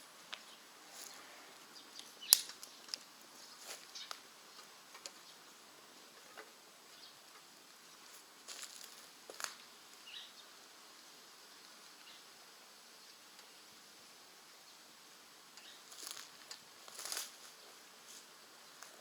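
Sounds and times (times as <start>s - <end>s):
quiet steady hiss: 0.0s - 19.0s
wood fire crackling: 1.9s - 6.4s, 15.5s - 17.5s.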